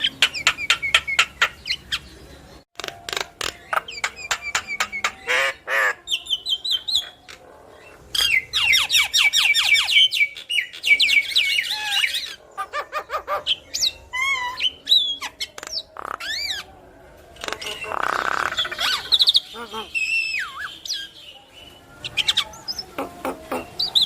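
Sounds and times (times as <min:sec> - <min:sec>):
myna bird chattering: 0:00.0 - 0:16.7, 0:17.3 - 0:24.0
whistled rising and falling calls: 0:17.7 - 0:24.0.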